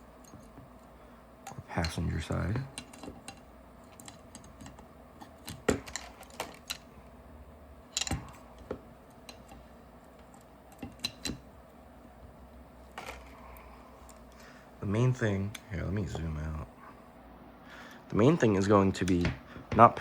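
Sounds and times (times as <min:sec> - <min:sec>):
plastic parts clicking: 0:02.8 - 0:06.9.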